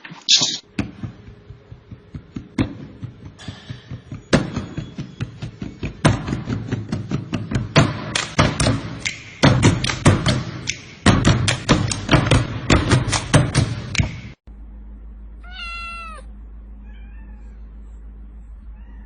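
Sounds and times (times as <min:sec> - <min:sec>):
sharp taps and thumps: 0:00.6 - 0:14.4
musical beat: 0:01.0 - 0:14.4.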